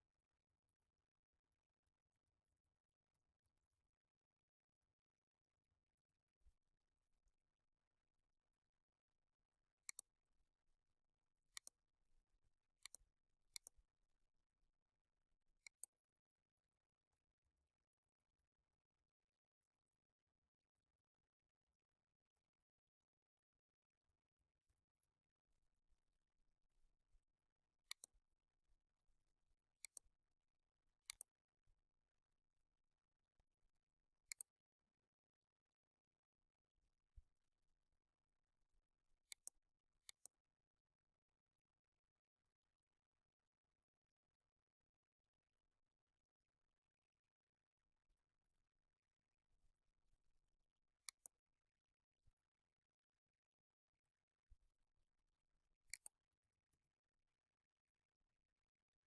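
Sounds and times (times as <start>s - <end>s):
faint sharp clicks: 27.9s - 28.2s, 31.0s - 31.3s, 34.3s - 34.5s, 39.3s - 40.4s, 55.9s - 56.2s.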